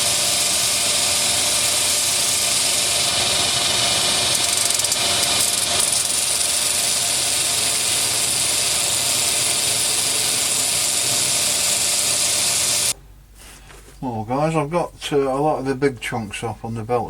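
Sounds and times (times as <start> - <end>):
belt sander motor running: 0.0 - 13.0.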